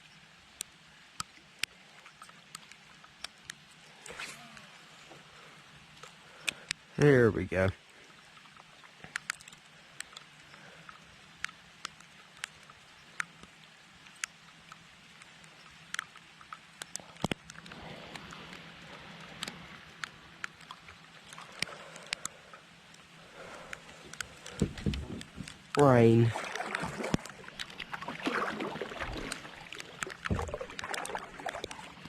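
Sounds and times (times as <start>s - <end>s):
light rain hissing: 0.0s - 26.3s
raindrops ticking close by: 0.5s - 28.0s, 28.9s - 32.0s.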